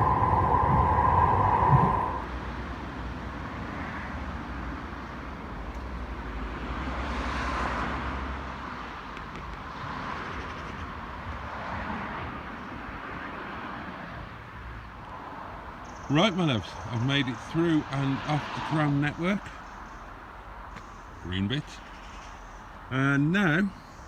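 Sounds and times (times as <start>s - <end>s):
loud steady high tone: 0.0s - 2.4s
urban vehicle rumble: 0.0s - 24.0s.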